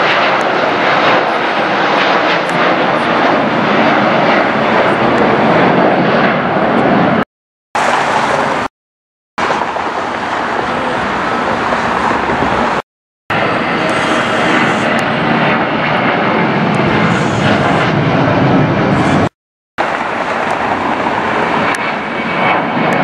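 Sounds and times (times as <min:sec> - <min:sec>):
airliner engine noise: 0:00.0 - 0:08.7, 0:09.4 - 0:23.0.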